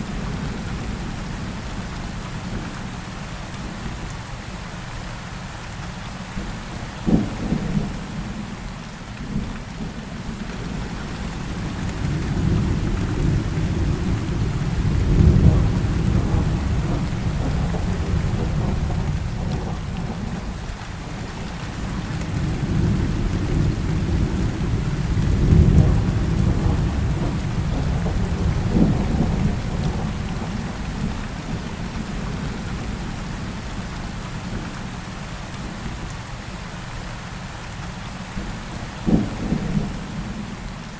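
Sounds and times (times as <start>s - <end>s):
heavy rain falling: 0.0s - 40.9s
rolling thunder: 10.7s - 33.6s, 39.0s - 40.8s.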